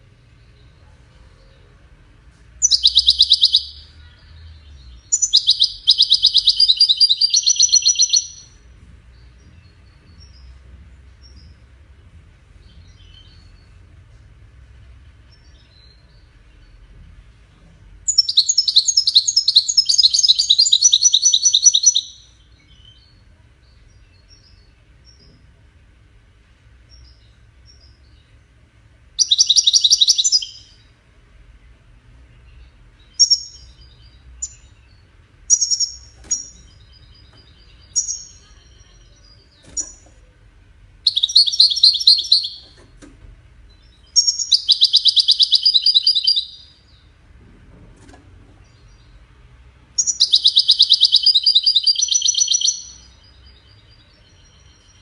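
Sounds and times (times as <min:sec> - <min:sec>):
goldfinch trilled song: 0:02.6 - 0:04.0, 0:05.0 - 0:08.6, 0:41.1 - 0:42.8, 0:43.7 - 0:47.0, 0:50.0 - 0:55.0.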